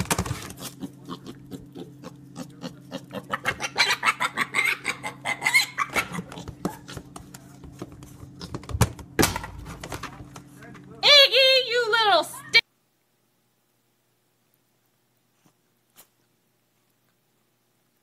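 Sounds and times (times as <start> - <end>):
animal high-pitched calls: 0.6 - 7.0.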